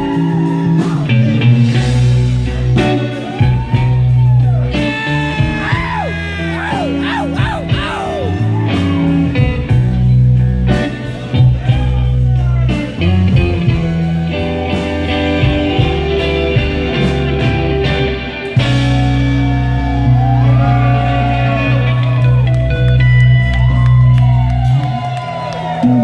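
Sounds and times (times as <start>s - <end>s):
blues-rock band playing: 0.0s - 26.0s
electric guitar bending notes: 4.6s - 9.6s.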